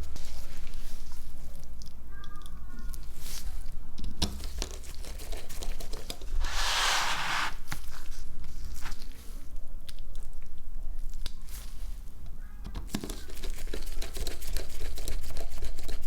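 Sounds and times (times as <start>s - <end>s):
harsh scraping noise: 6.4s - 7.6s.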